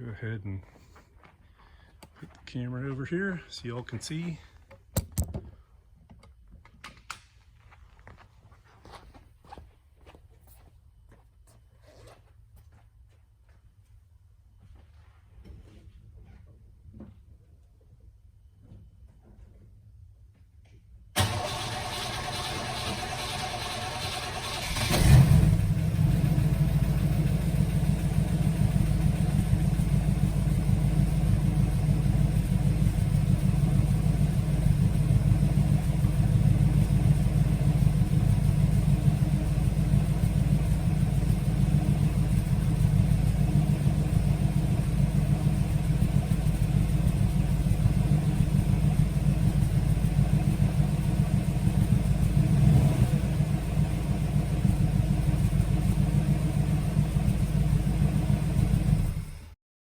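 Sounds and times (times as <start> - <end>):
car engine starting and idling: 21.2 - 59.6.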